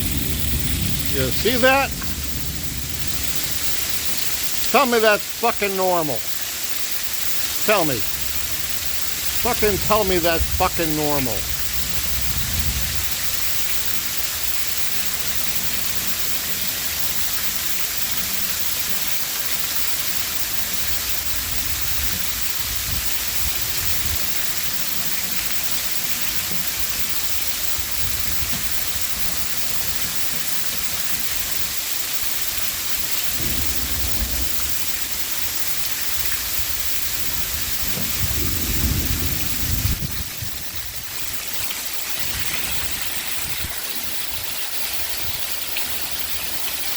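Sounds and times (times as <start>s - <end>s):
thunder rolling: 0.0s - 4.7s, 33.3s - 35.0s, 36.5s - 41.2s
torrential rain pouring: 0.0s - 46.9s.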